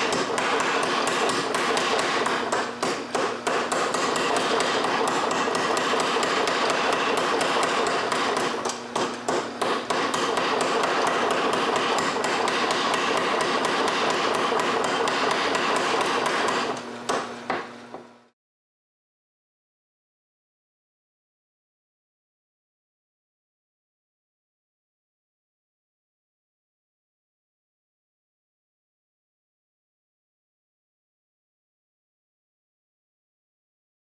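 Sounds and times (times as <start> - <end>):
hammer striking hot metal: 0.0 - 17.2.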